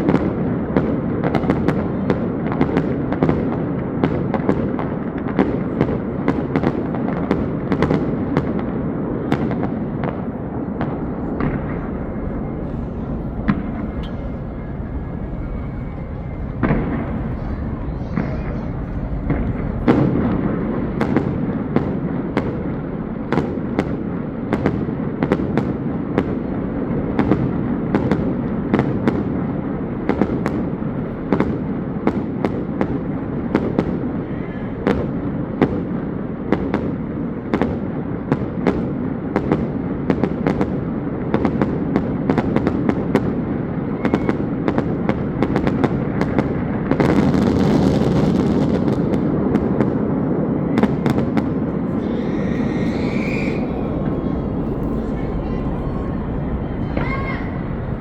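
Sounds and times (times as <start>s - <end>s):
fireworks bangs: 9.3s - 22.6s, 43.2s - 58.0s
background rumble: 10.8s - 21.2s, 50.8s - 58.0s.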